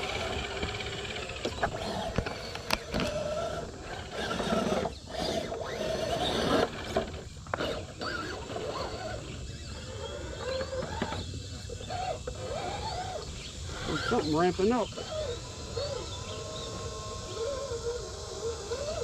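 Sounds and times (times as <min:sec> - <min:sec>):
rc truck motors whining: 0:00.0 - 0:19.0.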